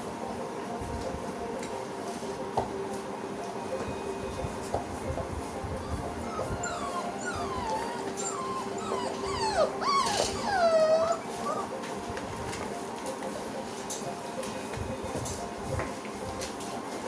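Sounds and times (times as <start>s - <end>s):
puppies whining: 5.7s - 12.0s.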